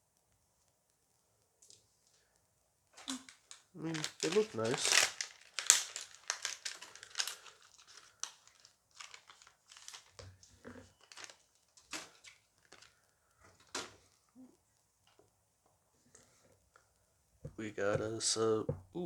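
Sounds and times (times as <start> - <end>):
foil wrapper crinkling and tearing: 3.0 - 14.0.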